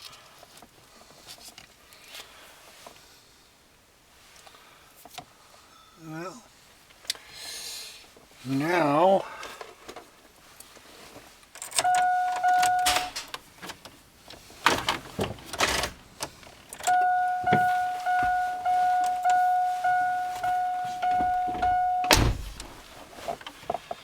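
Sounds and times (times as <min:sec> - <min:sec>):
dashboard warning chime: 0:11.8 - 0:13.3, 0:16.8 - 0:22.9
knocking and handling noise: 0:14.6 - 0:24.0
loud thump: 0:20.4 - 0:22.8.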